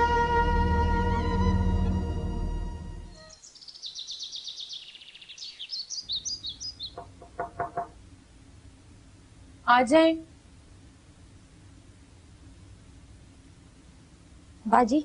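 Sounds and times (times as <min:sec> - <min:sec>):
birds chirping: 0:03.1 - 0:08.0.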